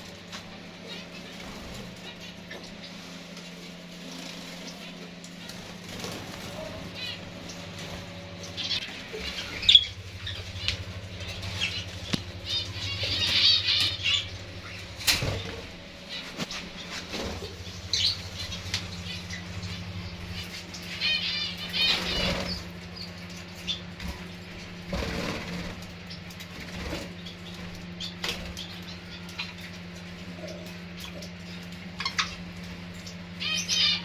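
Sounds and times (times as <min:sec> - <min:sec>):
steady low hum: 0:00.0 - 0:34.0
finches fluttering wings: 0:01.3 - 0:20.8, 0:24.0 - 0:28.7
rapid chirping: 0:06.6 - 0:23.9.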